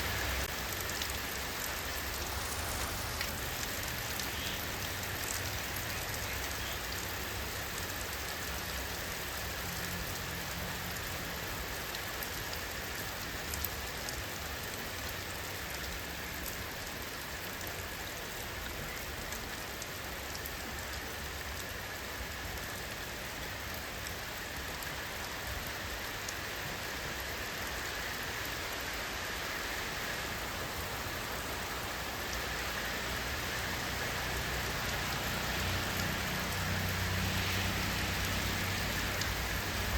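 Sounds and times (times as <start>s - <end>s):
rain hiss: 0.0s - 39.9s
raindrops ticking on a surface: 0.0s - 39.9s.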